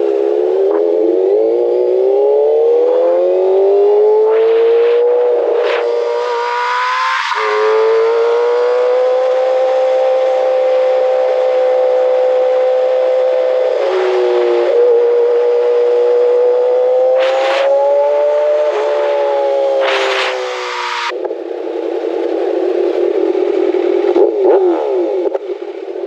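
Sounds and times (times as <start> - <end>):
motorcycle engine at high revs: 0.0 - 26.0
wind rush: 2.1 - 8.2, 17.2 - 24.0.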